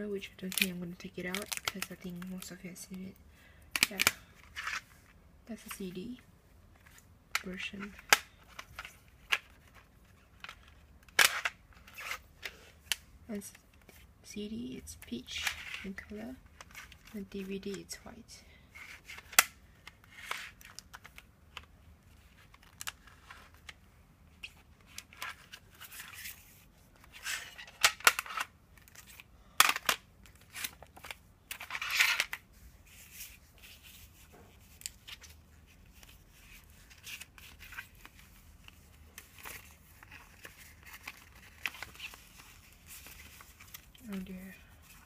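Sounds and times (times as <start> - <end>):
sharp plastic snaps: 3.7 - 4.3
paper and plastic rustling: 24.4 - 45.0.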